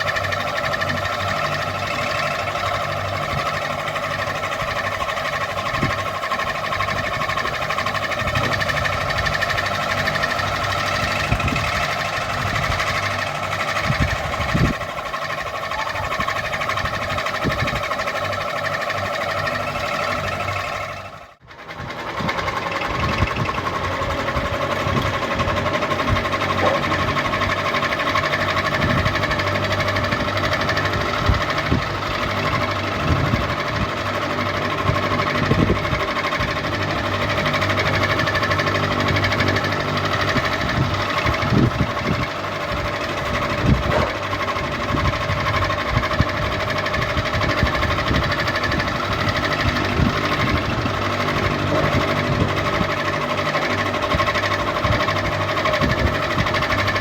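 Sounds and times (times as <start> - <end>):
fan rattling knocks: 21.9 - 57.0.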